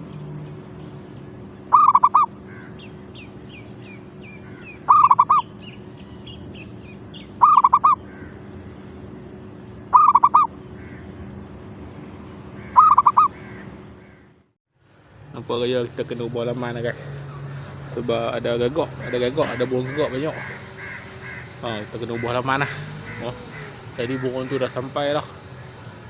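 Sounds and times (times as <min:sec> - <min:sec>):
small birds chirping: 0:00.0 - 0:11.1, 0:12.5 - 0:14.2, 0:17.2 - 0:26.0
dove cooing: 0:01.7 - 0:02.8, 0:04.4 - 0:05.4, 0:07.4 - 0:08.3, 0:09.9 - 0:10.5, 0:12.7 - 0:13.7, 0:22.2 - 0:24.5.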